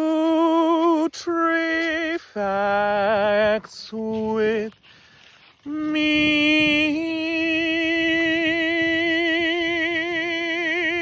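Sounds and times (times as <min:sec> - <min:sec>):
person singing a long note: 0:05.6 - 0:11.0.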